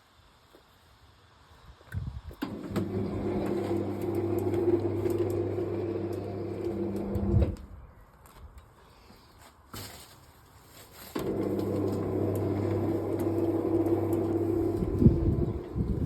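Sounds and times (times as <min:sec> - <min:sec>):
garage door motor humming: 0:02.4 - 0:07.7, 0:11.2 - 0:16.0.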